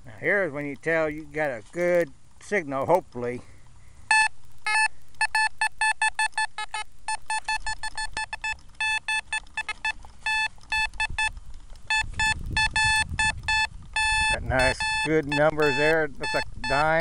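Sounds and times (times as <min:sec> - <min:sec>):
metal detector beeps: 0:04.1 - 0:17.0.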